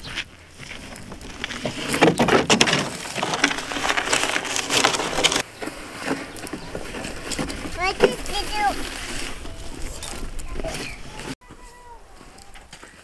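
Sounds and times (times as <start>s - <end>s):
dry material crackling and snapping: 0.9s - 5.4s.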